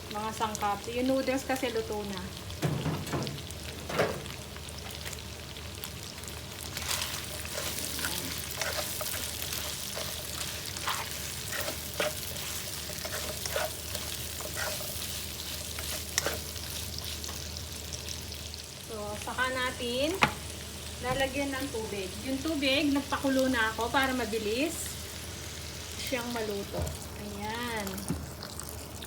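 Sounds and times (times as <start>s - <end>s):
food sizzling in oil: 0.0s - 29.0s
utensil stirring in pot: 6.6s - 18.0s.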